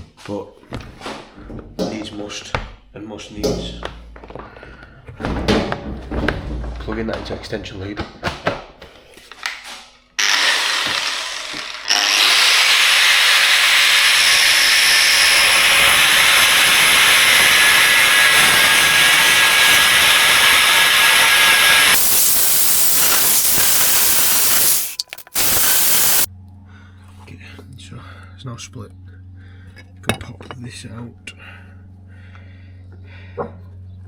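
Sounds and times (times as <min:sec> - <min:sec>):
power tool cutting metal: 0:10.2 - 0:26.3.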